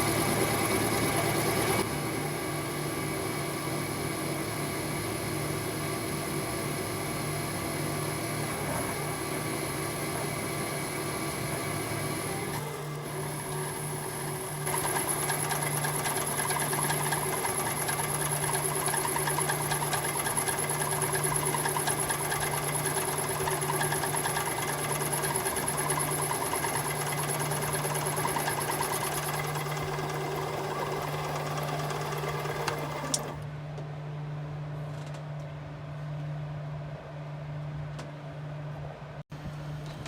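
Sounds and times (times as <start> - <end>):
machine tool cutting steel: 12.5 - 33.4
click: 32.6 - 33.4.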